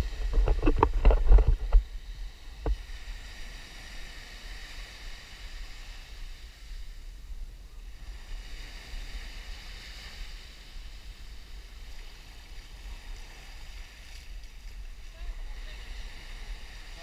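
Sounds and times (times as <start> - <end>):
wind buffeting microphone: 0.0 - 3.2
surf breaking on beach: 7.8 - 17.0.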